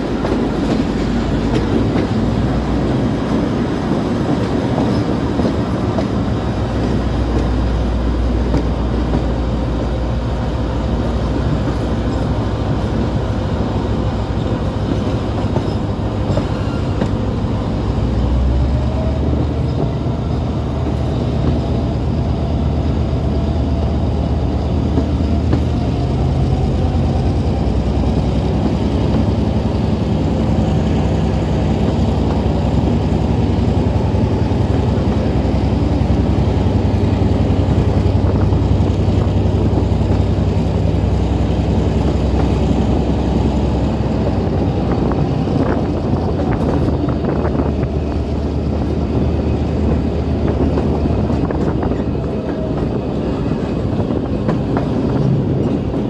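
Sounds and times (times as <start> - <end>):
diesel train rumbling: 0.0 - 56.0.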